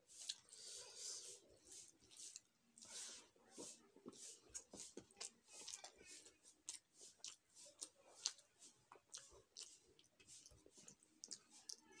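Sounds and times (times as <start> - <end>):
fingers working through rice: 0.0 - 12.0
person chewing food: 0.0 - 12.0.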